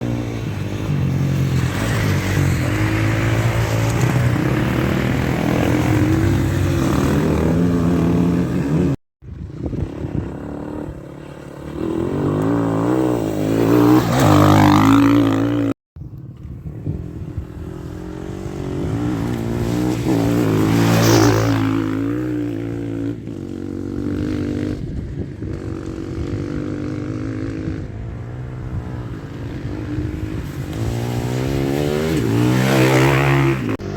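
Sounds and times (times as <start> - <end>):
motorcycles revving past: 0.0 - 33.9.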